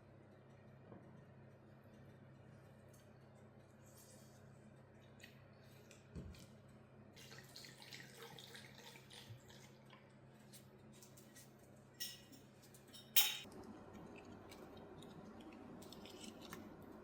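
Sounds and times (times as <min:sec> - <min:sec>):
low steady hum: 0:00.0 - 0:17.0
faint water trickling: 0:07.2 - 0:11.4.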